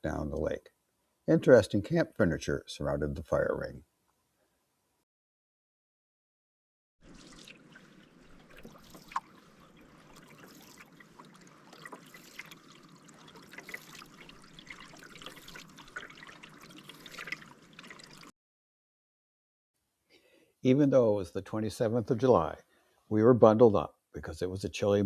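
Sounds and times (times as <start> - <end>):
water trickling and dripping: 7.0 - 18.3.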